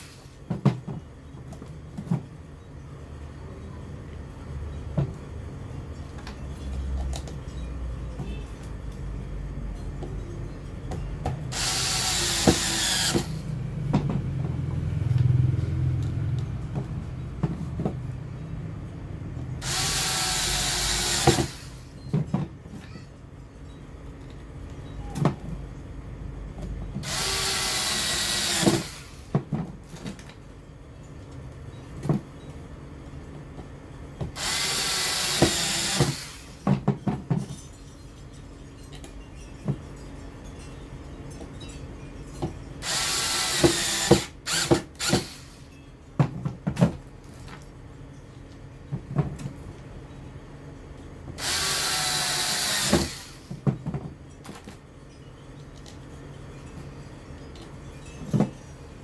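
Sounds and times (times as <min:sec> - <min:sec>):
cordless drill driving screws: 0:11.5 - 0:13.4, 0:19.6 - 0:21.8, 0:27.0 - 0:29.2, 0:34.4 - 0:36.5, 0:42.8 - 0:45.6, 0:51.4 - 0:53.5
drill clicks: 0:11.5 - 0:13.4, 0:19.6 - 0:21.7, 0:27.0 - 0:29.1, 0:34.4 - 0:36.4, 0:42.8 - 0:45.5, 0:51.4 - 0:53.4.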